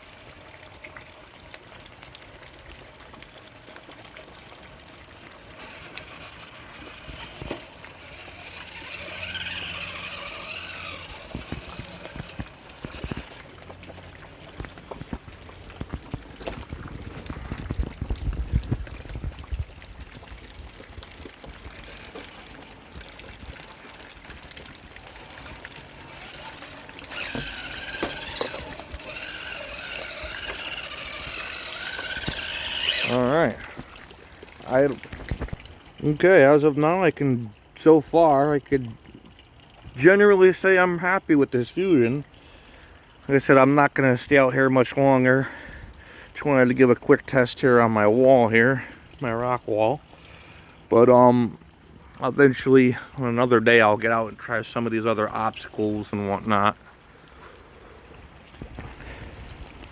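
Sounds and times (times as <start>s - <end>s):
rain trickling: 0.0s - 59.9s
toy car motor whining: 5.4s - 13.4s, 25.2s - 33.9s.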